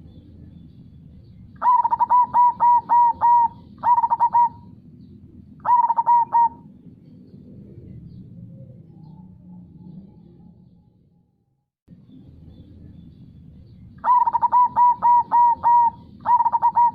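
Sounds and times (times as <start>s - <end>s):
dove cooing: 1.6s - 4.8s, 5.6s - 6.8s, 14.0s - 16.9s.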